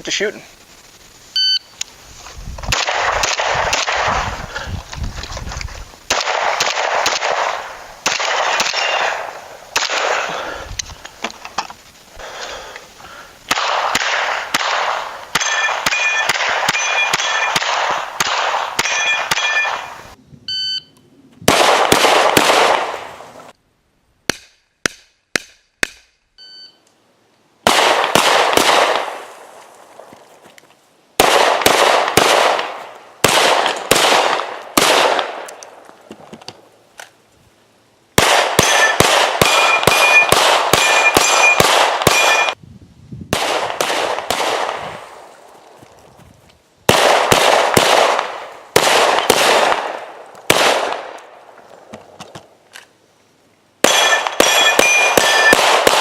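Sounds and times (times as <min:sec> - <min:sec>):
rapid gunfire: 0:02.7 - 0:04.3, 0:06.1 - 0:09.2, 0:21.5 - 0:23.0, 0:27.7 - 0:29.1, 0:31.2 - 0:35.4, 0:38.2 - 0:42.6, 0:43.4 - 0:44.8, 0:46.9 - 0:51.1, 0:53.8 - 0:56.0
bullets ringing on steel targets: 0:15.3 - 0:17.7, 0:18.8 - 0:20.0, 0:38.6 - 0:42.6, 0:53.8 - 0:55.7.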